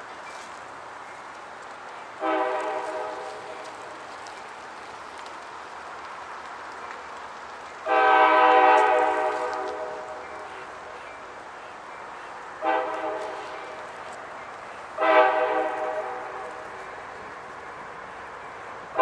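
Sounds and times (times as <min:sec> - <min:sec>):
locomotive air horn blasts: 0:02.2 - 0:03.5, 0:07.8 - 0:10.2, 0:12.6 - 0:13.9, 0:15.0 - 0:16.7.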